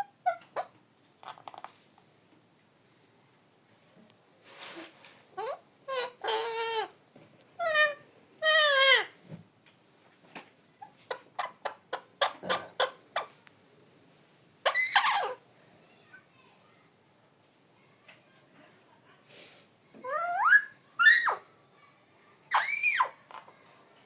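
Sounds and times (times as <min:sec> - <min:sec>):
parrot squawking and chirping: 0:00.0 - 0:01.8, 0:05.3 - 0:07.0, 0:07.6 - 0:09.1, 0:10.8 - 0:13.4, 0:14.6 - 0:15.4, 0:20.0 - 0:21.4, 0:22.5 - 0:23.5.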